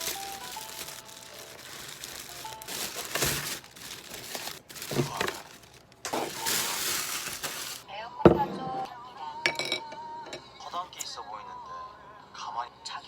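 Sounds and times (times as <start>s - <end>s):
crinkling and rustling: 0.0s - 7.8s
soft background music: 0.0s - 13.0s.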